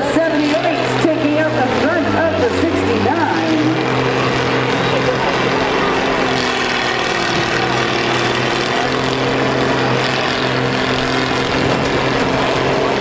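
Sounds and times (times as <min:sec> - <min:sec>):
combine harvester engines running: 0:00.0 - 0:13.0.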